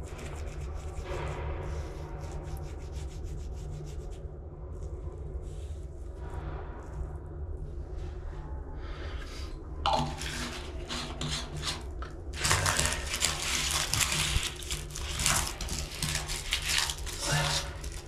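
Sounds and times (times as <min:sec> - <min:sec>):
brush scrubbing rubber: 0:00.0 - 0:04.2, 0:09.9 - 0:18.0
steady low hum: 0:00.0 - 0:18.0.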